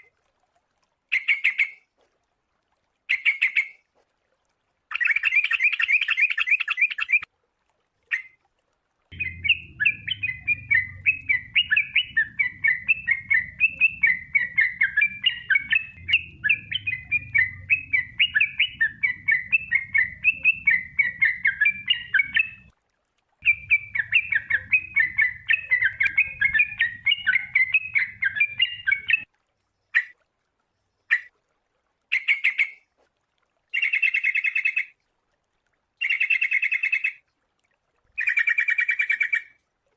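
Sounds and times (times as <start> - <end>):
bird chirping: 9.1 - 22.7, 23.4 - 29.2.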